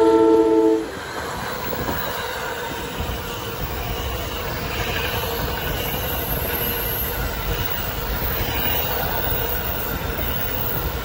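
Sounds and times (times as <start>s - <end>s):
train horn blast: 0.0s - 0.9s
train wheels rumbling on rails: 0.0s - 11.0s.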